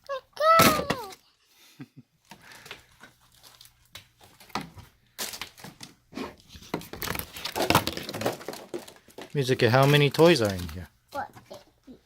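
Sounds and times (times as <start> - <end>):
plastic packaging crinkling: 2.4 - 11.6.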